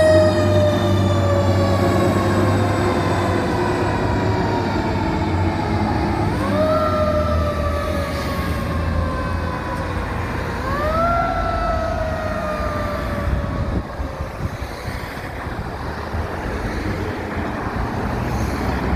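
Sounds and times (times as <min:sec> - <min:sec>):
fire engine siren winding: 0:00.0 - 0:14.5
truck engine and road noise: 0:00.0 - 0:18.9.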